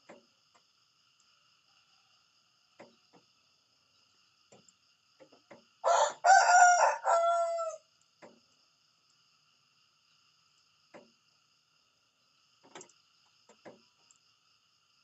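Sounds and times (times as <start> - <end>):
rooster crowing: 5.8 - 7.9.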